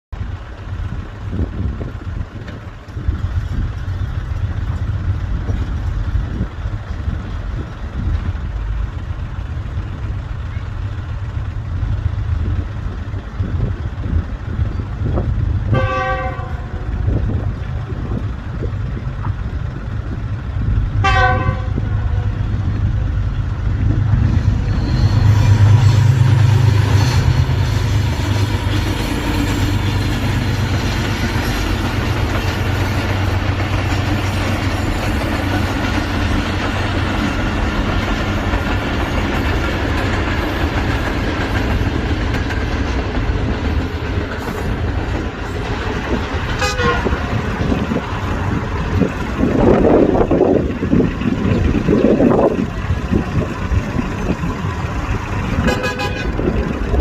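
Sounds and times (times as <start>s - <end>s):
locomotive engine hum: 0.1s - 57.0s
train rolling on rails: 0.1s - 57.0s
locomotive horn blasts: 15.7s - 16.9s, 21.0s - 22.4s, 46.6s - 47.3s, 55.6s - 56.5s.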